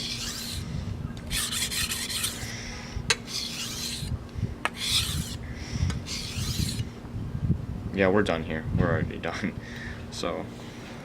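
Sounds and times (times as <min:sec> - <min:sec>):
knife rasping on whetstone: 0:00.0 - 0:00.6, 0:01.3 - 0:02.5, 0:03.2 - 0:04.1, 0:04.7 - 0:05.4, 0:06.1 - 0:06.8.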